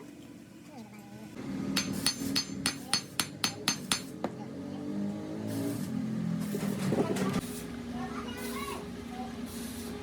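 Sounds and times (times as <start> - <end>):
hammer striking steel: 1.7 - 4.3.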